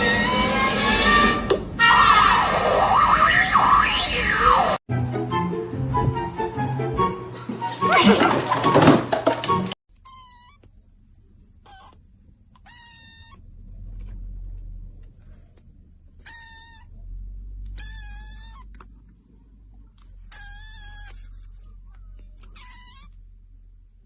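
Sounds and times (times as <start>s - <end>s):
cat meowing: 9.9s - 10.7s, 11.6s - 13.5s, 16.2s - 18.9s, 20.0s - 23.3s
low background rumble: 10.3s - 24.0s.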